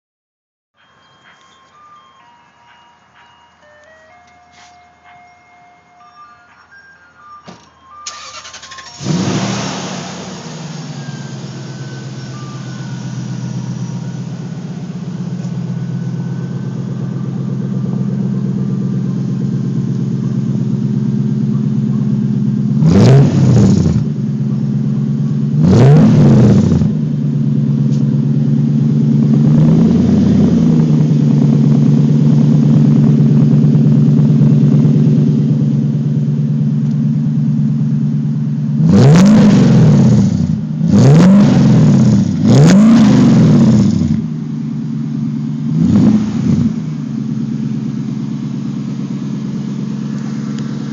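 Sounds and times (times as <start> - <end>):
car engine starting and idling: 0.8 - 50.9
engine revving: 8.1 - 35.6, 38.7 - 44.4, 45.6 - 50.9.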